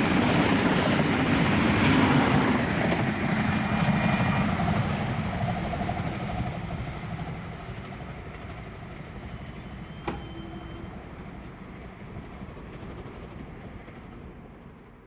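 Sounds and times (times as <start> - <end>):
passenger train rumble: 0.0 - 15.0
sharp click: 10.0 - 11.3.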